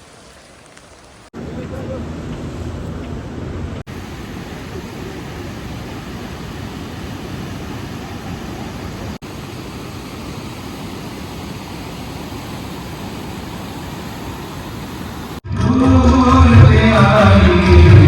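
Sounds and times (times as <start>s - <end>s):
low rushing noise: 1.4s - 15.4s.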